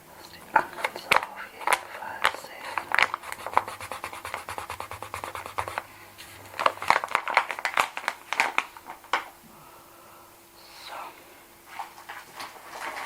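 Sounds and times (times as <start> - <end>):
crinkling handling noises: 0.2 - 3.7, 5.6 - 9.4, 11.6 - 13.0.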